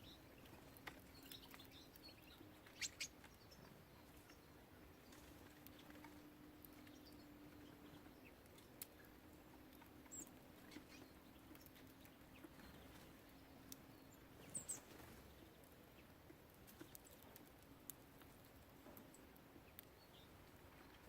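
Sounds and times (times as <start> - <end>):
birds pecking and hopping: 0.0 - 21.0
high bird chirps: 1.1 - 4.5.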